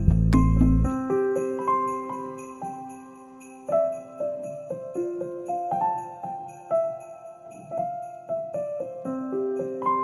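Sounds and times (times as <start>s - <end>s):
low bass notes: 0.0s - 0.9s
chiming bell-like melody: 0.4s - 10.0s.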